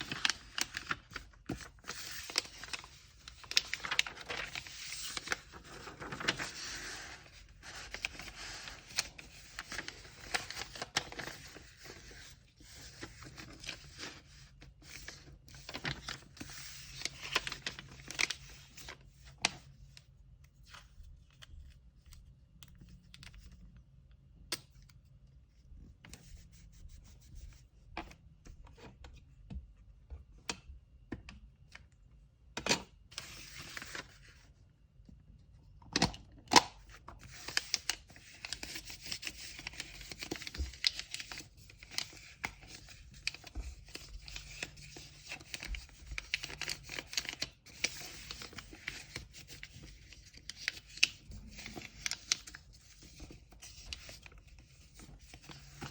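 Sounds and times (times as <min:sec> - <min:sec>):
paper crinkling rustle: 0:00.0 - 0:23.8, 0:33.0 - 0:34.5, 0:36.0 - 0:55.9.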